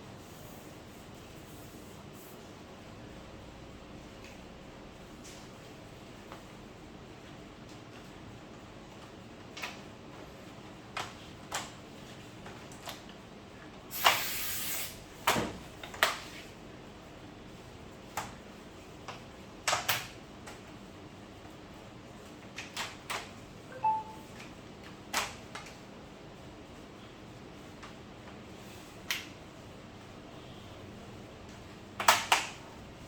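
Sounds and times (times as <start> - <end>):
brief hissing scrape: 14.0 - 15.0.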